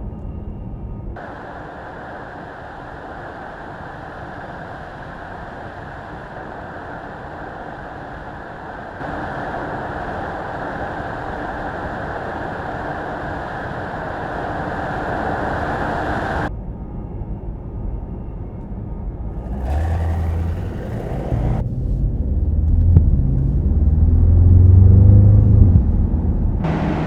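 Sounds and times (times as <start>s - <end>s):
car engine and road noise: 15.3s - 27.0s.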